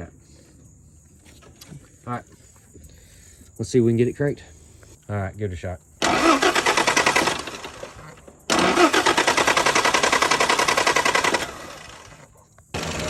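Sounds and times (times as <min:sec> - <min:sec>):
starter motor cranking engine: 0:06.0 - 0:13.0.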